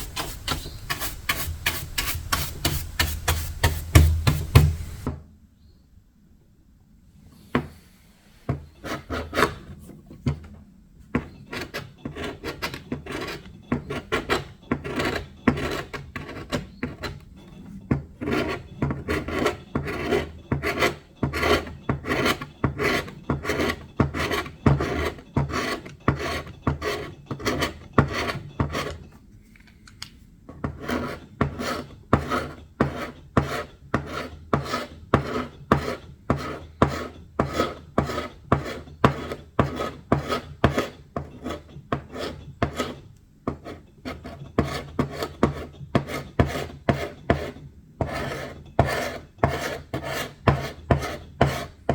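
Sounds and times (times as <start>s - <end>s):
rasping on wood: 0.0s - 5.1s, 30.7s - 51.9s.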